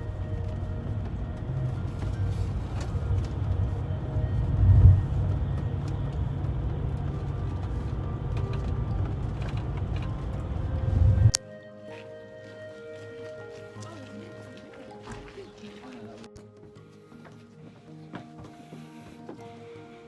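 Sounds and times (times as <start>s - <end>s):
vehicle rumble heard from inside: 0.0s - 11.4s.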